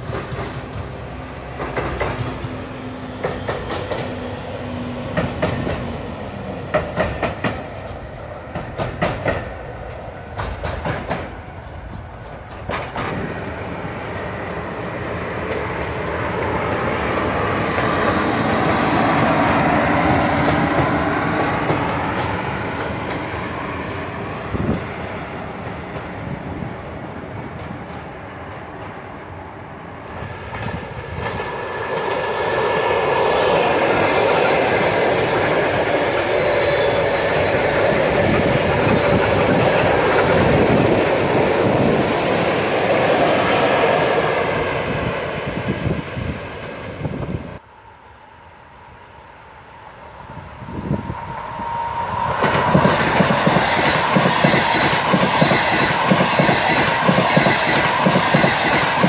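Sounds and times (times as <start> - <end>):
electric train passing: 0.0 - 59.0
locomotive running by: 27.4 - 59.0.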